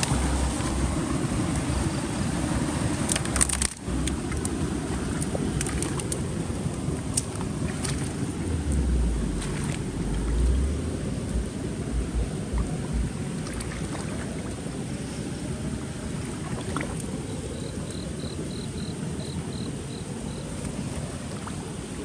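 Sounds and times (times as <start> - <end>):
wind and rain rushing: 0.0 - 22.0
wind buffeting microphone: 0.0 - 22.0.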